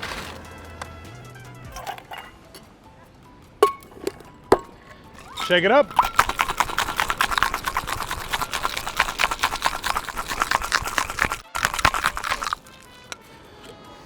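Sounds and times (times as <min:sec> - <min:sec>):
ice rattling in cocktail shaker: 0:03.6 - 0:13.2.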